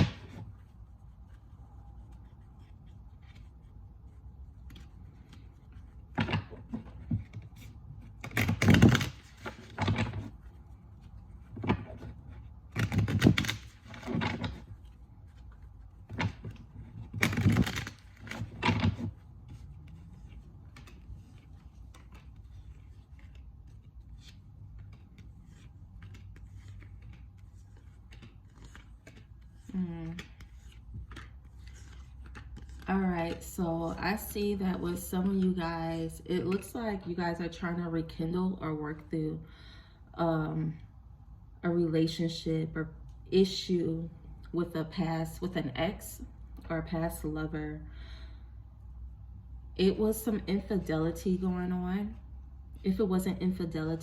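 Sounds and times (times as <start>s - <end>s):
cards being shuffled: 0.0s - 34.0s
cards ticking and clicking: 20.3s - 32.9s.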